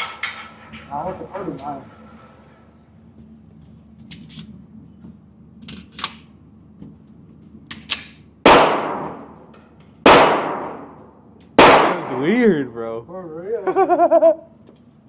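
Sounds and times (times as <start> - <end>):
handgun shots with echo: 7.8 - 9.3, 10.0 - 11.0, 11.6 - 12.3.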